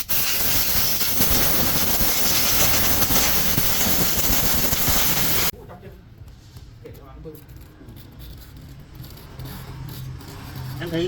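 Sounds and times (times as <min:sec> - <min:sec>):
compressed air hissing from nozzle: 0:00.0 - 0:05.5.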